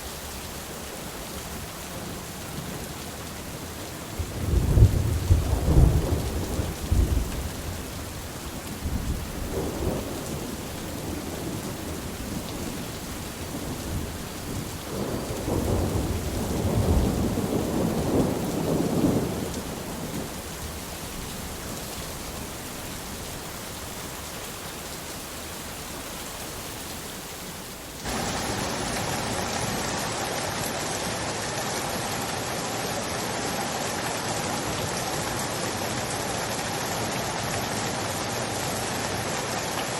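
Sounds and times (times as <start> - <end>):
rain falling: 0.0 - 39.9
rushing hiss of water: 5.5 - 39.9
thunder rolling: 28.1 - 31.3.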